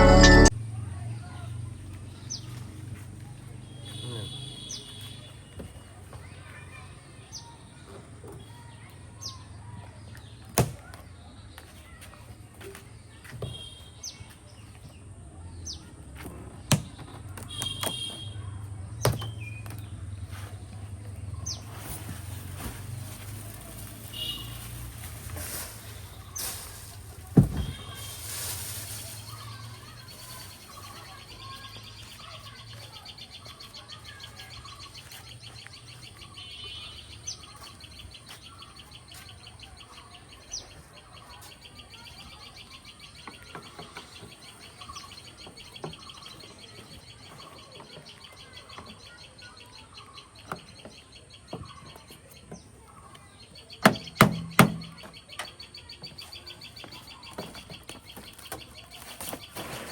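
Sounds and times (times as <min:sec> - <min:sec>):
birds chirping: 0:16.5 - 0:59.9
sharp knocks: 0:53.8 - 0:55.1.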